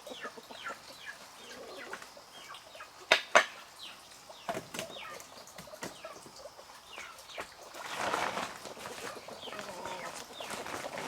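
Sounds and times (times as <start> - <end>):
chicks peeping: 0.0 - 3.2, 3.8 - 11.0
chickens clucking: 0.0 - 11.0
wings flapping: 7.8 - 11.0.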